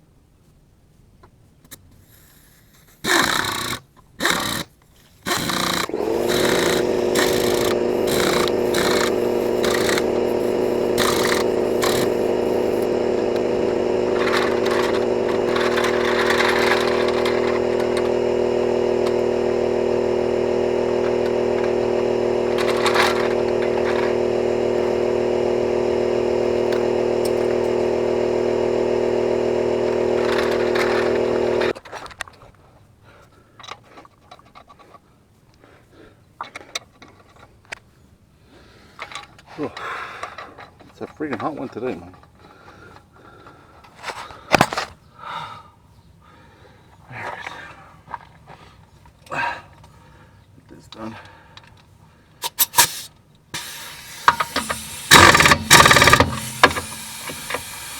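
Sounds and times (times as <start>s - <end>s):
air compressor running: 3.1s - 4.7s, 5.3s - 31.8s, 52.4s - 57.9s
rattling: 5.3s - 31.7s, 53.6s - 57.9s
short loud bursts: 5.3s - 31.7s, 52.4s - 57.9s.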